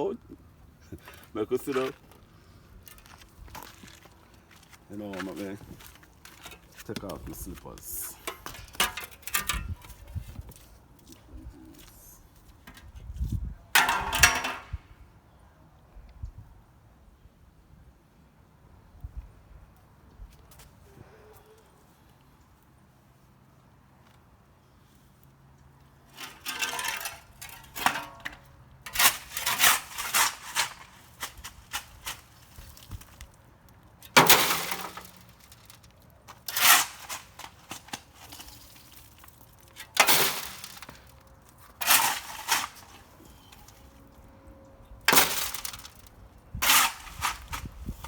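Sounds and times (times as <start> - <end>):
rubble clattering and crunching: 0.8 - 12.9, 13.7 - 14.8, 26.0 - 44.2, 44.9 - 48.0.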